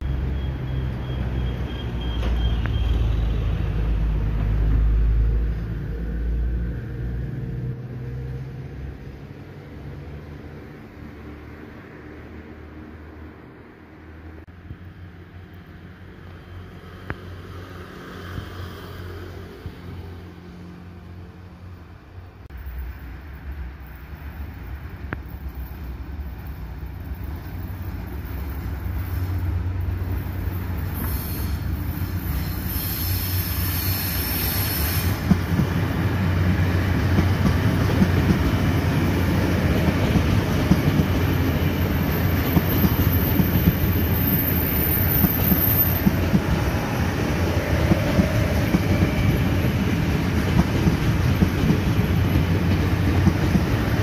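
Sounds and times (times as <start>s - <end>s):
high wheel squeal: 0.0s - 3.6s, 25.3s - 35.3s, 41.2s - 49.9s
passenger train rumble: 0.0s - 54.0s.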